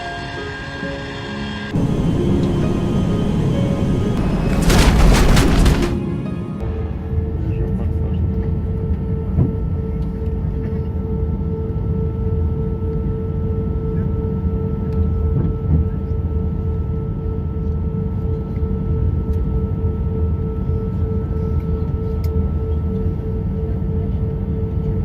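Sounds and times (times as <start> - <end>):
airliner cabin hum: 1.7 - 11.6.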